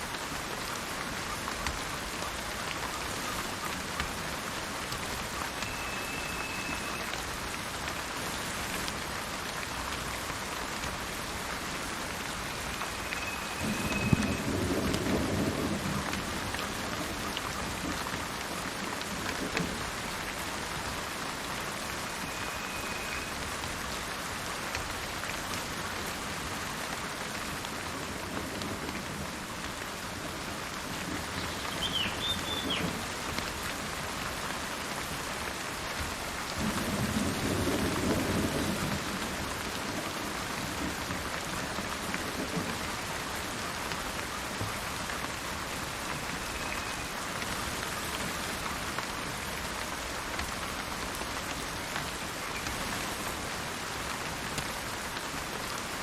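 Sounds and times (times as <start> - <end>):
steady rain: 0.0 - 56.0
bird call: 5.6 - 7.2, 12.8 - 14.4, 31.4 - 33.0
thunder rumbling: 13.4 - 17.0.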